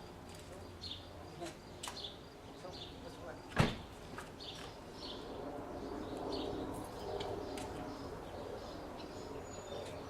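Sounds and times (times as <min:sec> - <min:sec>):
birds chirping and calling: 0:04.4 - 0:10.0.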